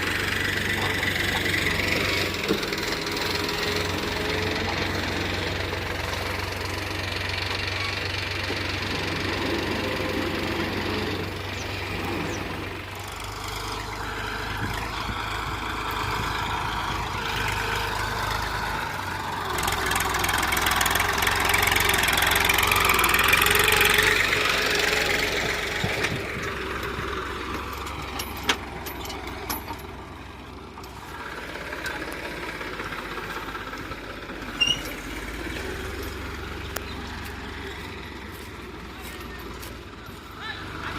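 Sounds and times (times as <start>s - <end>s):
diesel tractor engine running: 0.0s - 40.9s.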